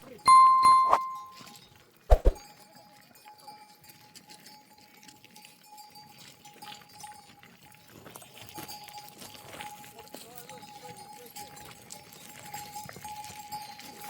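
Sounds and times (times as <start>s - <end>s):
faint steady high tone: 0.0s - 1.4s.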